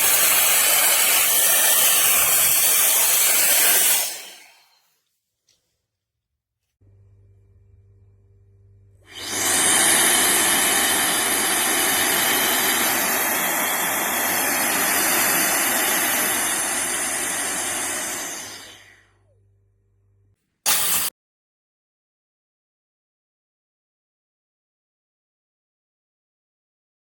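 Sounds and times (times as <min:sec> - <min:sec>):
electric air duster blowing: 0:00.0 - 0:04.8, 0:09.0 - 0:19.1, 0:20.7 - 0:21.1.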